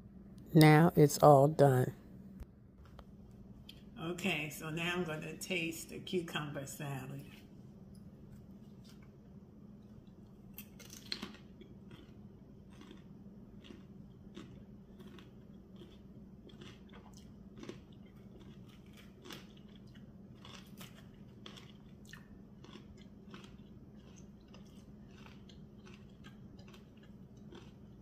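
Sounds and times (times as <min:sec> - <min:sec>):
chewing crisp cucumber: 0:09.8 - 0:28.0.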